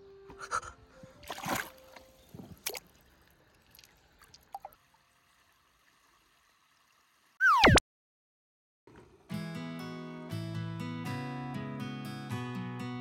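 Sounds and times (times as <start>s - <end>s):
water sloshing and splashing: 1.2s - 5.6s.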